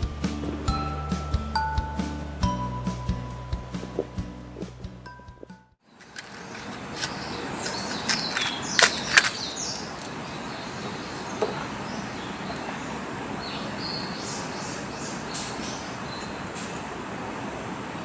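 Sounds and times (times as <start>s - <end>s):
high bird calls: 6.2s - 16.7s.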